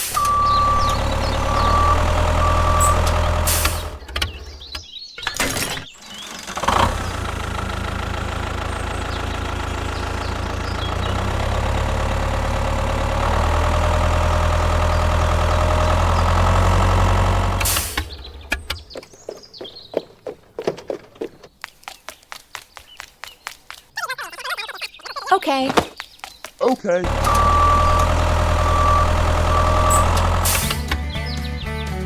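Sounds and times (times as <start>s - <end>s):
small tractor engine running: 0.0s - 19.0s, 27.0s - 31.1s.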